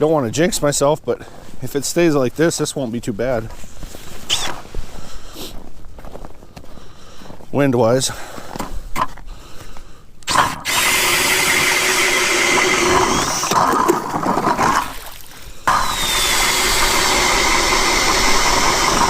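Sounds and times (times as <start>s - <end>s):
motor whine: 10.3s - 14.8s, 15.7s - 19.0s
ice auger boring through ice: 10.3s - 19.0s.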